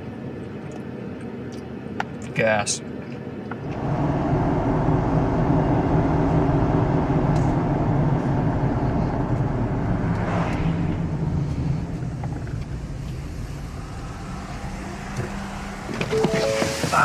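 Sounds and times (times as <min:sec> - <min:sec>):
pickup engine pulling away: 0:03.6 - 0:17.0.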